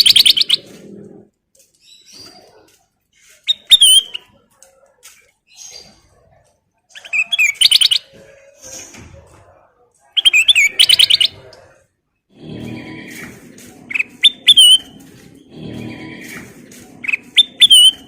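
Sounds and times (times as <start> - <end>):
low background murmur: 0.6 - 18.0
songbird singing: 10.2 - 11.6, 13.9 - 18.0.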